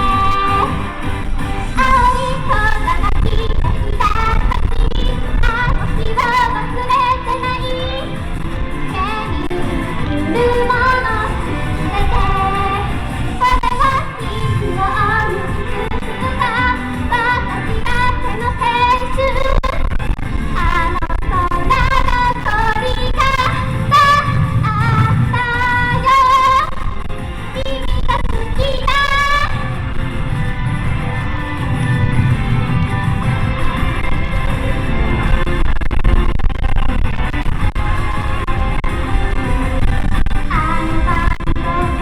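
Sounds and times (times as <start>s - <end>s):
woman singing: 0.0s - 1.0s, 1.7s - 19.9s, 20.6s - 26.8s, 27.5s - 29.6s, 40.5s - 42.0s
live pop song: 0.0s - 35.4s, 38.2s - 42.0s
backing track: 0.0s - 42.0s
wind buffeting microphone: 0.0s - 42.0s.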